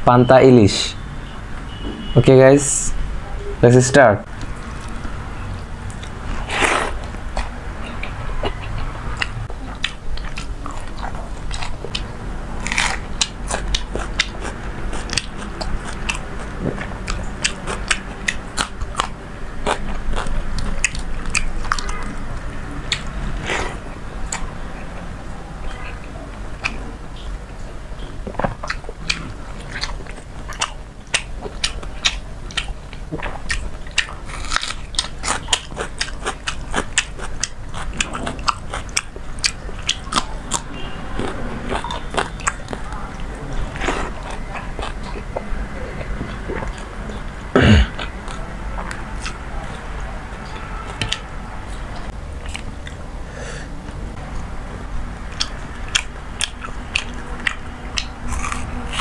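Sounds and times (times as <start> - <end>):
person chewing: 4.3 - 53.8, 55.2 - 59.0
food crunches: 5.9 - 21.9, 28.2 - 40.6, 55.4 - 59.0.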